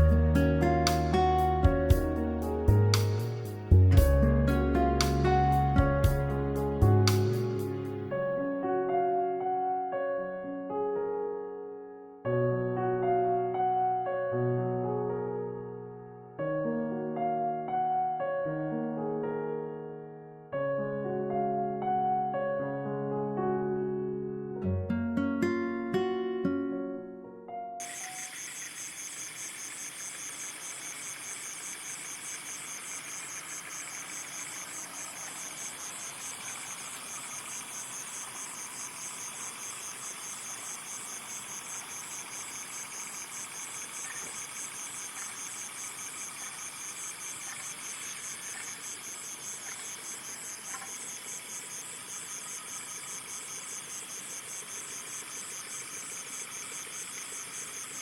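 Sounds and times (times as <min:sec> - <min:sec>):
insects trilling: 0:00.0 - 0:07.9, 0:27.8 - 0:58.0.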